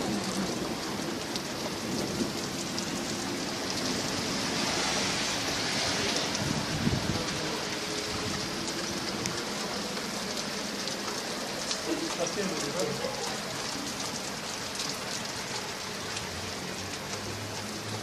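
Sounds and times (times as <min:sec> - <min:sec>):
raindrops ticking on surface: 0:00.0 - 0:18.0
steady rain: 0:00.0 - 0:18.0
low thunder rumble: 0:06.2 - 0:07.5.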